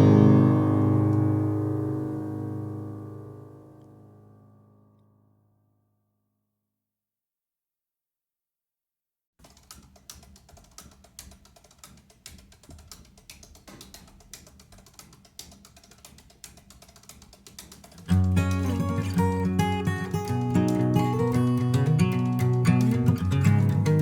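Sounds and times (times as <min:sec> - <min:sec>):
loud acoustic guitar music: 0:00.0 - 0:03.5, 0:18.1 - 0:24.0.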